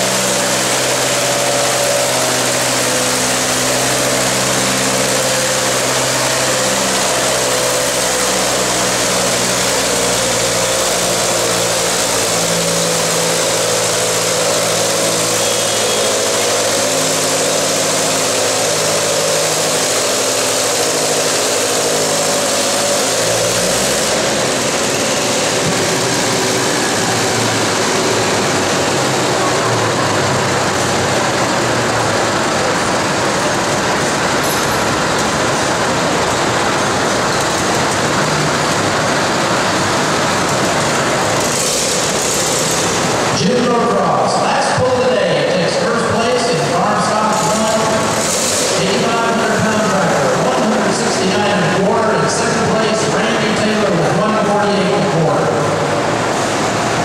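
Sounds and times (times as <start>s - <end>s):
tractor engine running under load: 0.0s - 57.0s.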